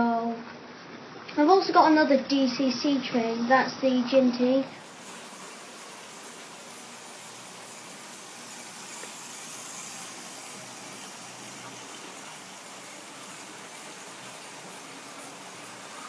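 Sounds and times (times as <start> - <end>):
steady hiss: 0.0 - 16.0
model train motors whirring: 4.4 - 16.0.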